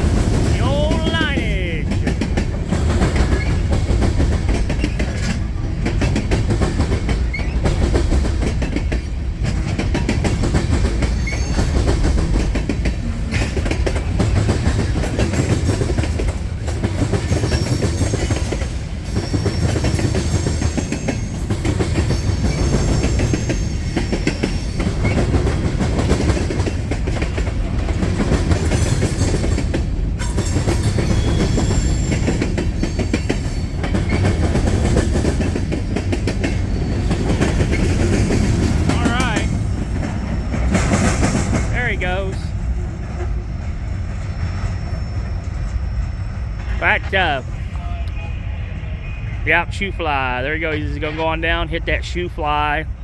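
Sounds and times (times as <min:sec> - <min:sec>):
wheels clacking over rail joints: 0:00.0 - 0:01.0, 0:01.8 - 0:44.8
train rumbling past: 0:00.0 - 0:53.0
high wheel squeals: 0:07.1 - 0:07.9, 0:11.0 - 0:12.2, 0:17.2 - 0:25.8, 0:30.2 - 0:41.8, 0:44.3 - 0:46.9.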